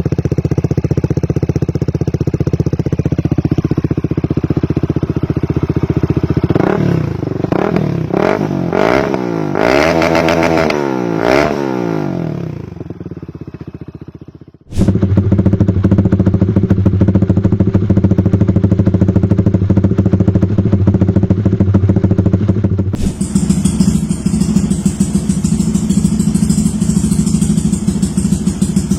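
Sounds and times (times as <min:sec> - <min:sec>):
motorcycle engine idling: 0:00.0 - 0:09.6, 0:11.1 - 0:28.9
motorcycle engine revving: 0:00.0 - 0:28.9.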